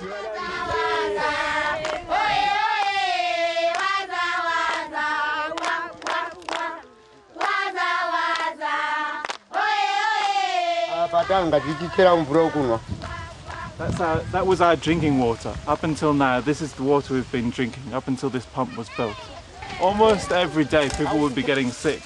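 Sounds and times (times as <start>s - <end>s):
group of voices singing: 0.0s - 14.2s.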